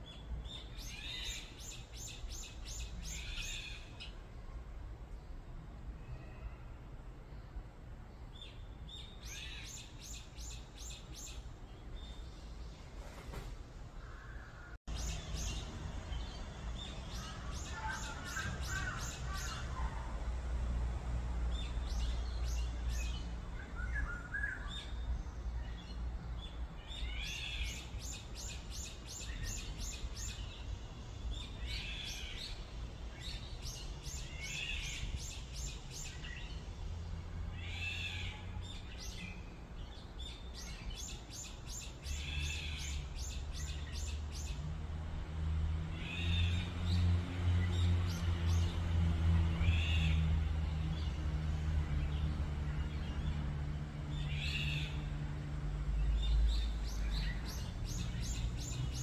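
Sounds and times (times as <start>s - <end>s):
birds calling and singing: 0.0s - 4.3s, 8.2s - 20.6s, 21.4s - 59.0s.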